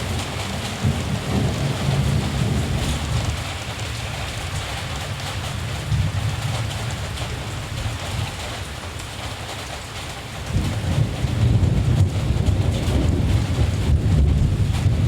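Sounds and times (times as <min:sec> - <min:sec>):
distant thunder rumble: 0:00.0 - 0:03.5, 0:10.4 - 0:15.0
steady rain: 0:00.0 - 0:15.0.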